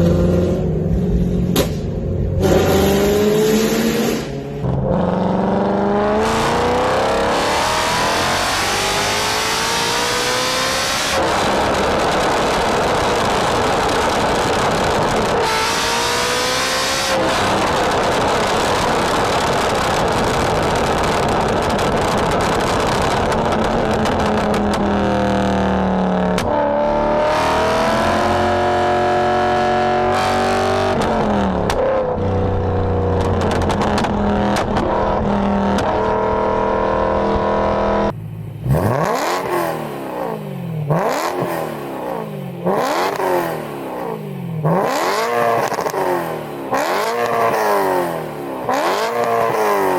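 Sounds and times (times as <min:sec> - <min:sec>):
car engine accelerating through gears: 0:00.0 - 0:49.9
car engine revving: 0:00.0 - 0:49.9.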